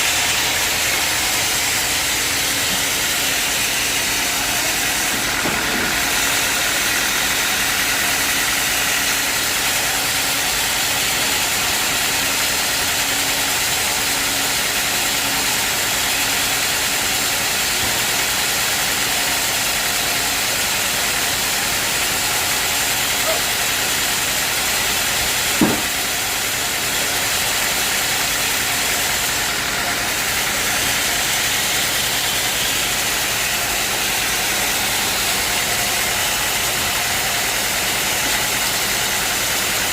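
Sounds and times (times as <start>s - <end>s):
sawmill machinery running: 0.0s - 39.9s
sharp knock: 25.6s - 26.1s.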